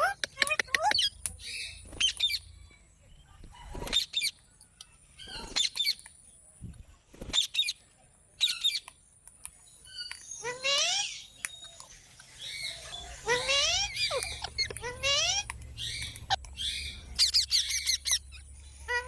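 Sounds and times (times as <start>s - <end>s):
parakeet calls: 12.2s - 19.0s.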